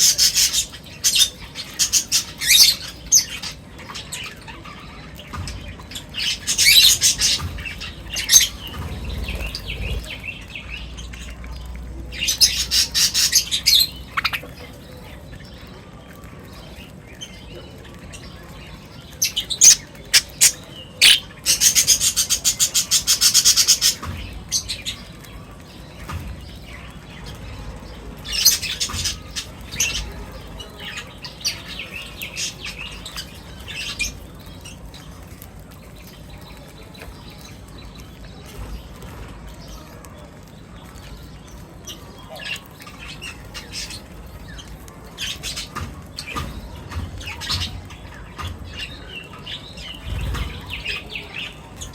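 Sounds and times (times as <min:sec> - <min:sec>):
fast bird chattering: 0:00.0 - 0:15.8, 0:16.6 - 0:27.6, 0:28.2 - 0:35.2
birds chirping: 0:00.0 - 0:51.9.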